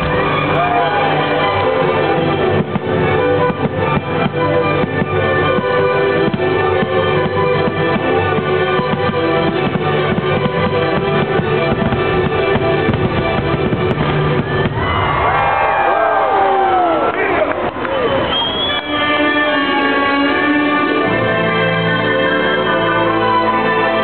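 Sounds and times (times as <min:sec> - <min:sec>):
orchestral music playing loudly: 0:00.0 - 0:15.0, 0:18.6 - 0:24.0
fireworks bursting: 0:00.0 - 0:15.6
high gliding whistling tones: 0:17.8 - 0:20.5.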